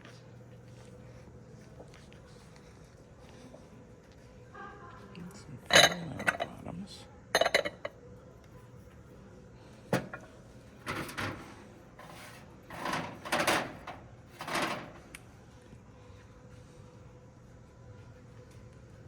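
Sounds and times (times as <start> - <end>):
scraping and rustling: 10.0 - 15.2.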